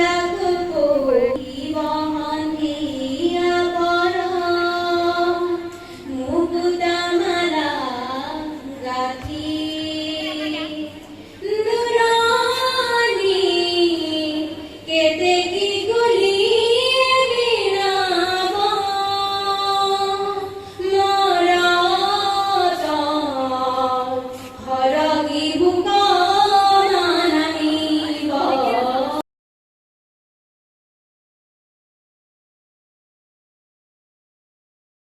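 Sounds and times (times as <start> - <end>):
women singing slow song: 0.0 - 10.1.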